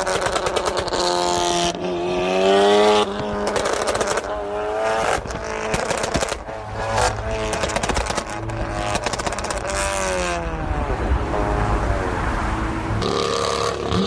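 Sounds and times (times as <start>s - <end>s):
exhaust pops crackling: 0.0s - 1.9s, 2.8s - 10.2s
sports car engine revving: 0.0s - 14.0s.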